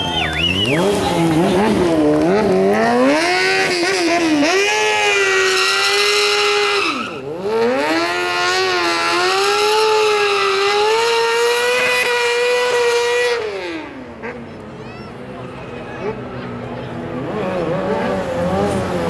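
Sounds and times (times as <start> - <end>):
motorcycle engine revving high: 0.0 - 14.6, 15.8 - 19.0.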